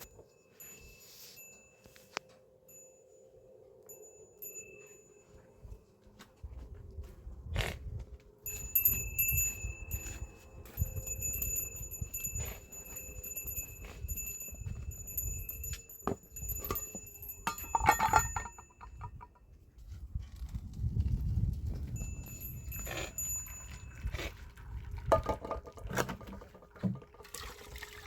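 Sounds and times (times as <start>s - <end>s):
small metal bell jingling: 0.0s - 3.3s, 3.9s - 5.6s, 8.5s - 19.3s, 21.7s - 24.0s.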